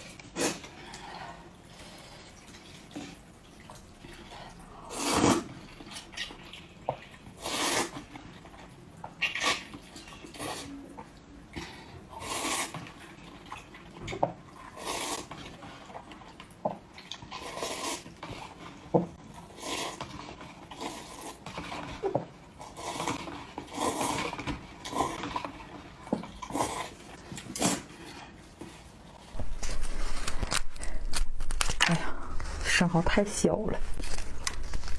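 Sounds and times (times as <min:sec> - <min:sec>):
wet chewing and slurping: 0:00.0 - 0:29.3.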